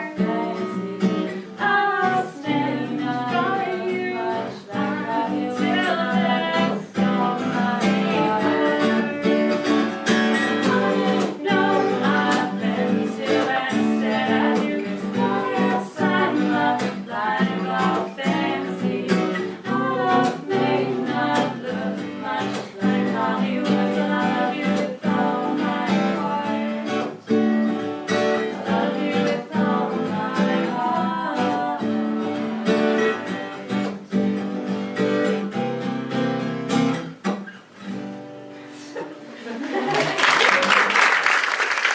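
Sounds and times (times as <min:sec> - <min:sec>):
women singing: 0:00.0 - 0:27.3, 0:28.1 - 0:33.9
acoustic guitar strumming: 0:00.0 - 0:38.7.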